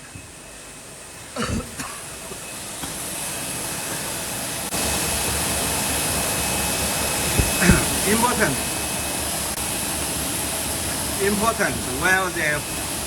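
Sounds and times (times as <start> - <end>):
hot-air blower rushing: 0.0 - 13.0
knocks: 7.3 - 7.9
thump: 7.4 - 7.8.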